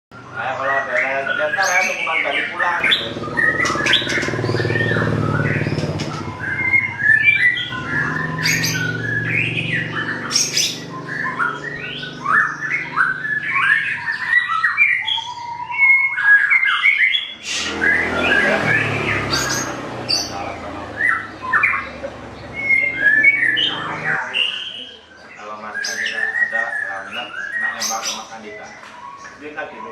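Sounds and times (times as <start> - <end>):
songbird whistling and chattering: 0.2 - 29.9
short rushing noise: 17.4 - 19.6.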